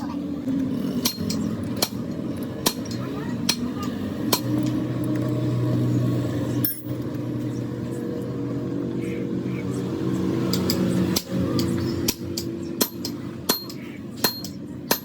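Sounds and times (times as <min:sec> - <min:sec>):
low mechanical hum: 0:00.0 - 0:15.0
sharp metallic taps: 0:01.0 - 0:04.8, 0:10.5 - 0:15.0.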